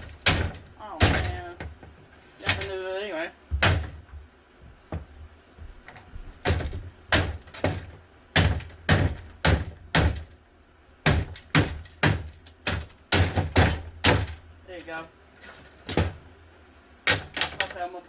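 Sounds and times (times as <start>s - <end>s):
blows smashing plastic fan: 0.0s - 1.6s.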